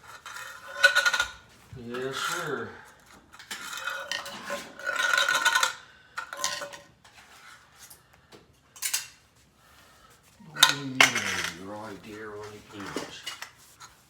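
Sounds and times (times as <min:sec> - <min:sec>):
dishes and utensils clattering: 0:00.0 - 0:07.9, 0:08.8 - 0:09.3, 0:10.4 - 0:14.0.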